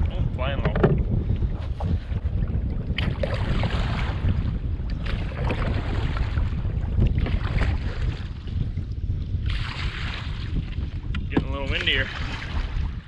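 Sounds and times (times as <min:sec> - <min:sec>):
wind buffeting microphone: 0:00.0 - 0:13.0
water splashing: 0:11.4 - 0:13.0.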